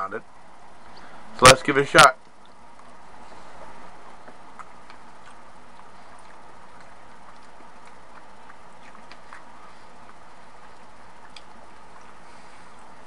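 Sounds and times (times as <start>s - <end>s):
mouth clicks chewing: 3.6s - 13.0s.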